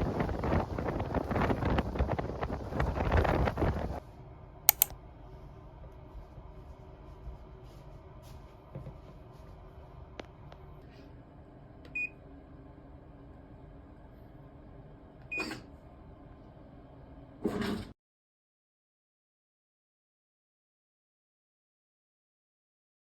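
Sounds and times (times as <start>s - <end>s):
small clicks: 4.7s - 4.9s.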